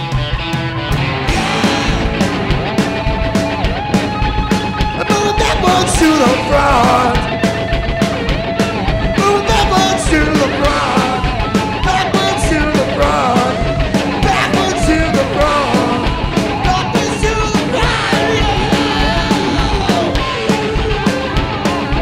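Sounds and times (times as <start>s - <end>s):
live rock band playing: 0.0s - 22.0s
shouted singing: 5.0s - 7.4s, 9.1s - 22.0s.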